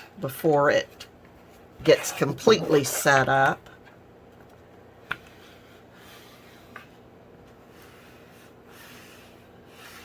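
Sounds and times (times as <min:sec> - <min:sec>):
fabric rubbing on book cover: 0:07.6 - 0:10.0.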